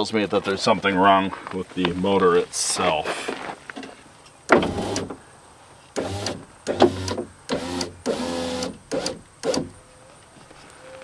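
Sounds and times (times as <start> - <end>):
power window motor whine: 4.5 - 5.2, 6.0 - 9.8
window motor click: 4.5 - 5.2, 6.0 - 9.8.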